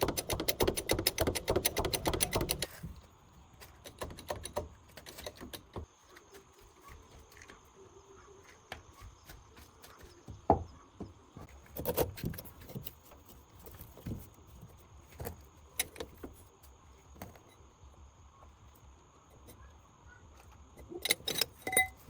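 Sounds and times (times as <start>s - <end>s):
knocks and clinks on metal: 20.8s - 22.0s.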